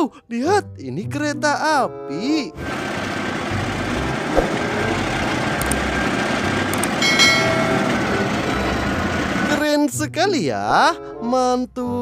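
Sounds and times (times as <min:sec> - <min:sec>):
train running on rails: 0:02.6 - 0:09.7
brief high tone: 0:07.0 - 0:09.0.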